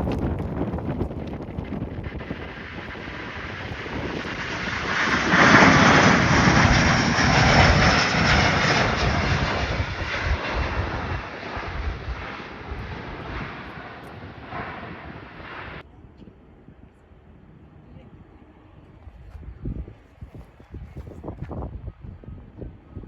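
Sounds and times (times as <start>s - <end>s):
airliner engine passing: 1.6s - 15.8s.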